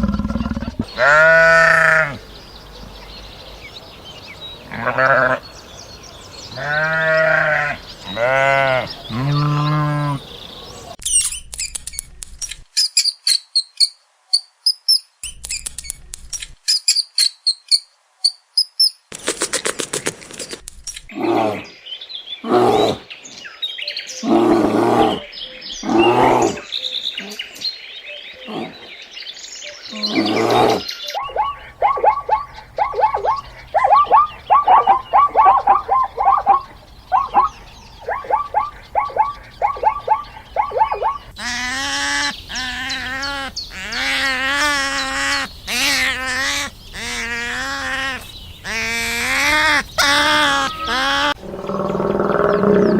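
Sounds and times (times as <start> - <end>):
animal bleats: 0.0 - 2.2, 4.7 - 5.4, 6.5 - 10.2
loud repeated animal calls: 0.0 - 2.2, 29.9 - 52.9
high bird chirps: 29.6 - 41.5.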